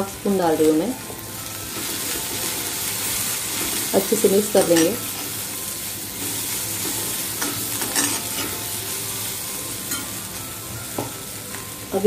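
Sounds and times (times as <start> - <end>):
vegetables sizzling in oil: 0.0 - 12.0
metal spoon scraping pan: 6.2 - 8.6.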